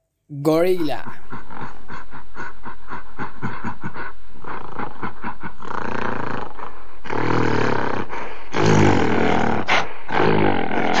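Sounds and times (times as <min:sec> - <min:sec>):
gorilla grunting: 0:01.0 - 0:11.0
gorilla roaring: 0:04.5 - 0:11.0.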